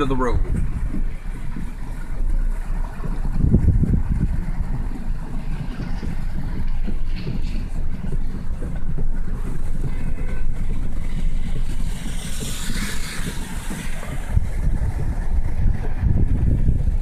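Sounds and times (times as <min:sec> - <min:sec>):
moving vehicle rumble: 0:00.0 - 0:17.0
wind on microphone: 0:00.0 - 0:17.0
hissing rush: 0:09.2 - 0:17.0.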